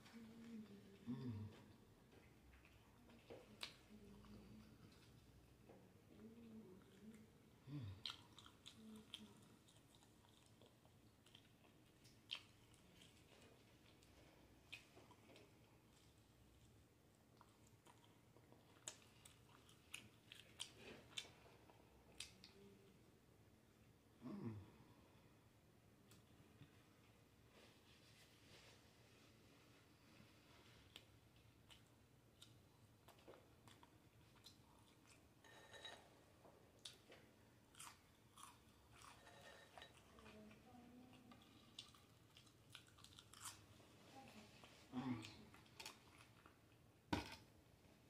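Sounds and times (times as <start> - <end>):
soft chewing: 0.0 - 48.0
chewing and wet mouth smacks: 8.0 - 16.2, 30.9 - 35.3, 41.2 - 43.7.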